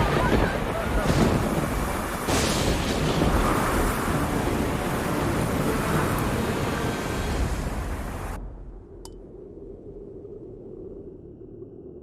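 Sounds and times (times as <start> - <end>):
heavy rain: 0.0 - 8.4
thunder crack: 0.0 - 8.5
wind roaring: 0.0 - 12.0.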